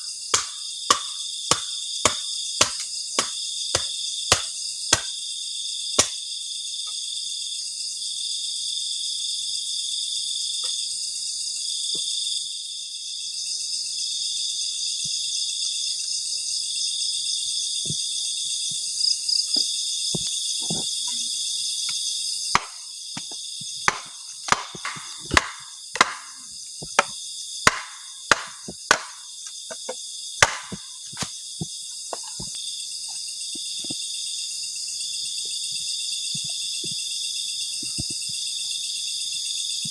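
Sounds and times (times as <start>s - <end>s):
crickets and insects chirping: 0.0s - 39.9s
sharp knocks and cracks: 0.3s - 5.1s, 6.0s - 6.2s, 22.6s - 31.3s.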